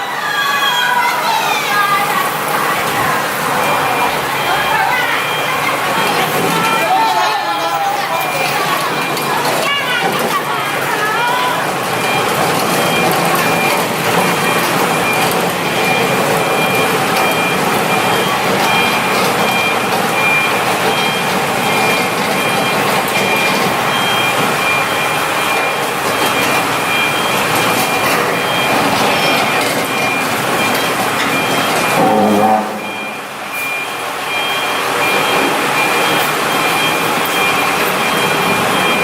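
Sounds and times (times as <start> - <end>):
loud machine noise: 0.1 - 39.0
high thin tones: 31.9 - 33.5.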